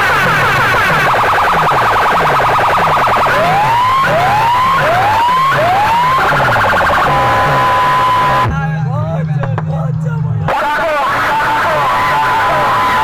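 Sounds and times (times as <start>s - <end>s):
falling bass beat: 0.0s - 8.6s
siren-style electronic effects: 0.0s - 8.6s, 10.5s - 13.0s.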